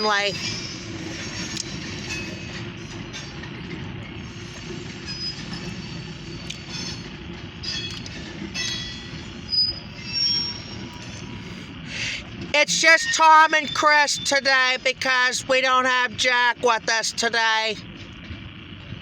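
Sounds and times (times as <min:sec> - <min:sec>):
train wheels rumbling on rail: 0:00.0 - 0:17.2, 0:17.8 - 0:19.0
high-pitched wheel squeals: 0:04.2 - 0:11.8.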